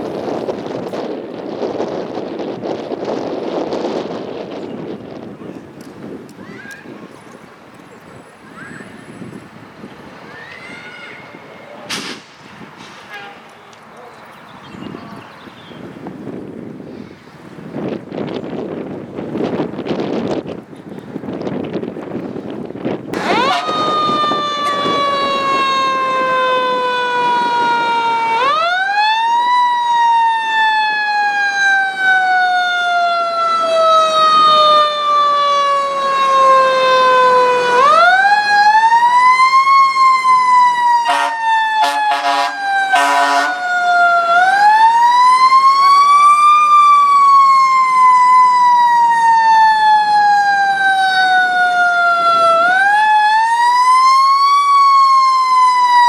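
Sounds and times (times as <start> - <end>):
fire truck siren wailing: 0.0 - 5.3, 8.3 - 11.8, 22.8 - 56.0
short horn blasts: 13.0 - 13.5, 23.2 - 23.8, 41.1 - 43.6.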